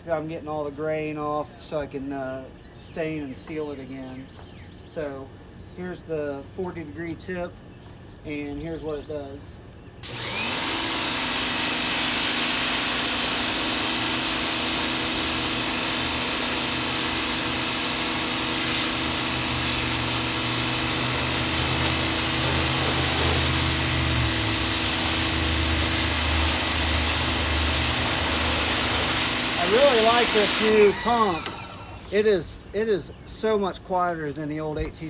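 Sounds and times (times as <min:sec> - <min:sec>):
pressure washer pump humming: 0:10.0 - 0:32.2
water jet hissing on wood: 0:13.3 - 0:32.0.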